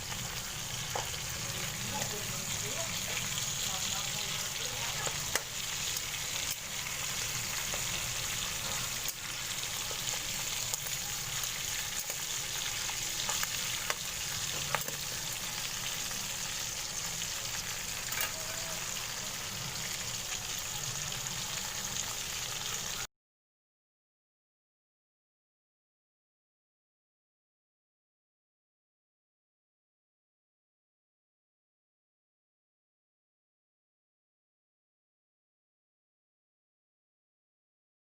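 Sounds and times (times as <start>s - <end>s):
chicken sizzling in a pan: 0.0s - 23.1s.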